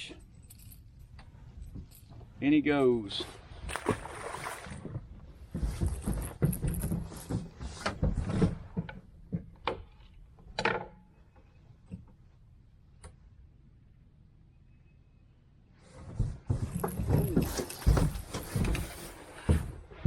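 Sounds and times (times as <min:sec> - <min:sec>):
fishing gear clattering: 0:03.1 - 0:08.7, 0:16.6 - 0:19.2.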